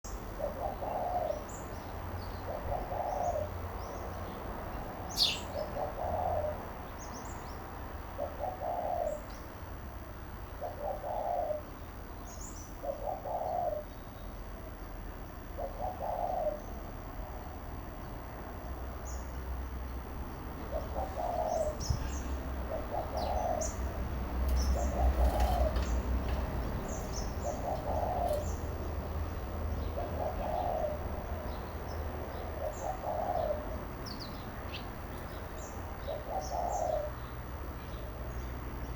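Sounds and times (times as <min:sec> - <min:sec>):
sparrows chirping: 0:00.0 - 0:38.9
dove cooing: 0:00.2 - 0:01.8, 0:02.4 - 0:04.1, 0:04.9 - 0:06.8, 0:07.9 - 0:12.1, 0:12.7 - 0:13.9, 0:15.4 - 0:18.8, 0:20.5 - 0:37.7.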